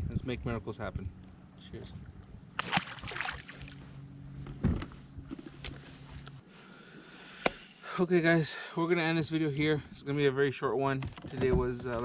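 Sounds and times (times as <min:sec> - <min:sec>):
low hum: 0:00.0 - 0:10.3
rustling and splashing: 0:02.6 - 0:04.0.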